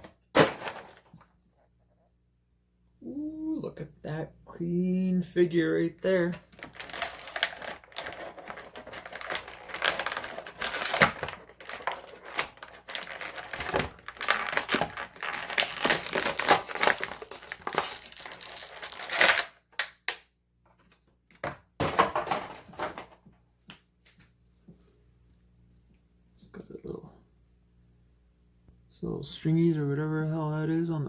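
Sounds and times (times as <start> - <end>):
plastic packaging crinkling: 6.1 - 19.9.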